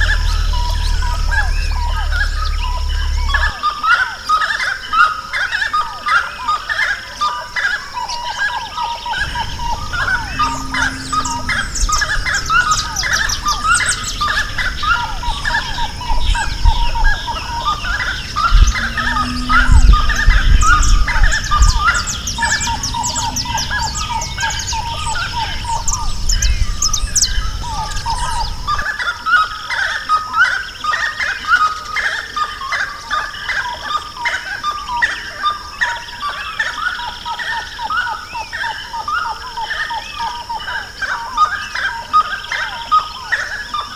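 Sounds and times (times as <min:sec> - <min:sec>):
low rumble: 0:00.0 - 0:03.6, 0:09.1 - 0:28.8
steady high-pitched hum: 0:00.0 - 0:03.7, 0:09.0 - 0:28.9
chorus of birds singing: 0:00.0 - 0:43.9.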